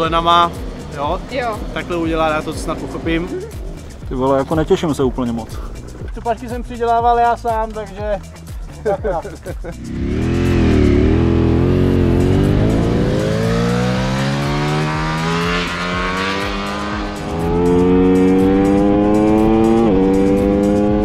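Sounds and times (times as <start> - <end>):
racing motorcycle engine revving: 9.7 - 21.0.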